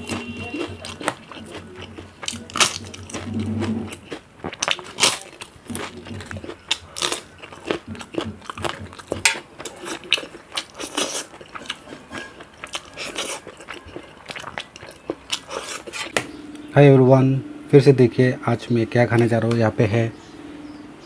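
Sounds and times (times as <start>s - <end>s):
crunchy chewing: 0.0s - 16.7s.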